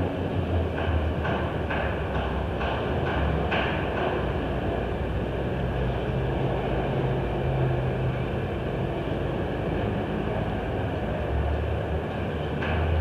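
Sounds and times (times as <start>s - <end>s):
car engines rumbling: 0.0s - 13.0s.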